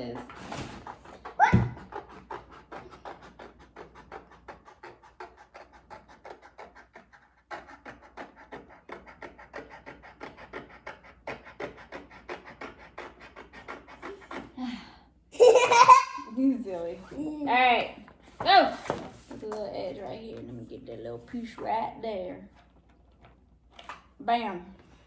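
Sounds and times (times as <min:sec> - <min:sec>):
quick scratching strokes: 0:00.0 - 0:14.5.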